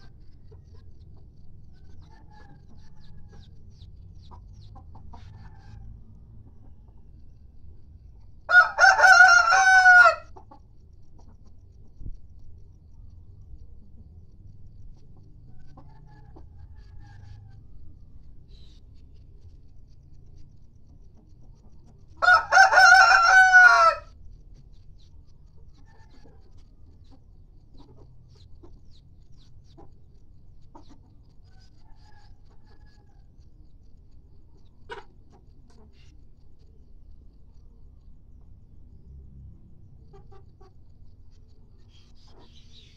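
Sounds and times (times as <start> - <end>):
rooster crowing: 8.5 - 10.3, 22.2 - 24.1.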